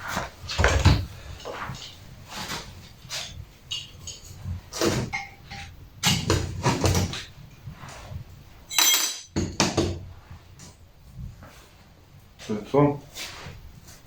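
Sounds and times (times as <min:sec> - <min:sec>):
metal workpieces knocking: 0:03.1 - 0:07.2, 0:08.7 - 0:10.0
ringing metallic clink: 0:08.7 - 0:09.3.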